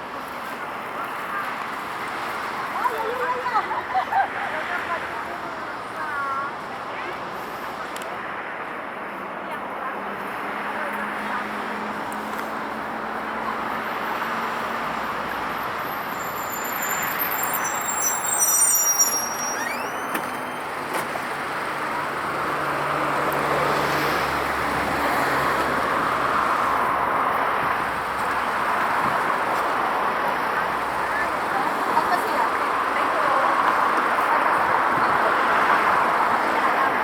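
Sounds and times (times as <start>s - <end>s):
road traffic rushing: 0.0s - 37.0s
high squeal: 15.9s - 21.2s.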